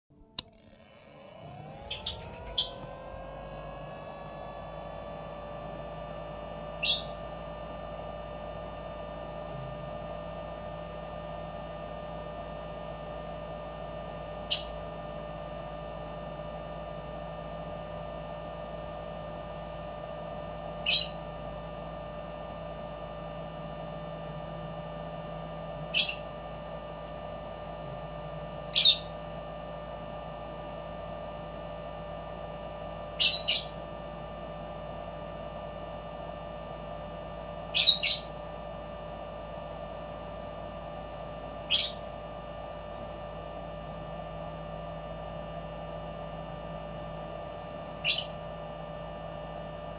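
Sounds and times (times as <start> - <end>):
electrical hum: 0.1 - 49.9
bird chirping: 1.9 - 2.9, 6.8 - 7.2, 14.5 - 14.8, 20.8 - 21.2, 26.0 - 26.3, 28.7 - 29.1, 33.2 - 33.8, 37.8 - 38.4, 41.7 - 42.1, 48.1 - 48.4.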